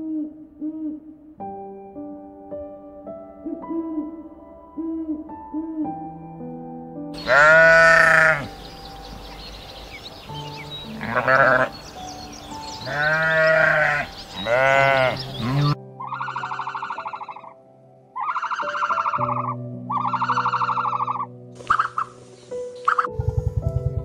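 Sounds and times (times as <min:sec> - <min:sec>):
soft background music: 0:00.0 - 0:24.0
drawn-out animal calls: 0:07.2 - 0:08.7, 0:10.9 - 0:11.9, 0:12.8 - 0:17.5, 0:18.2 - 0:22.1
rapidly pulsing animal call: 0:12.8 - 0:17.6, 0:18.2 - 0:22.2.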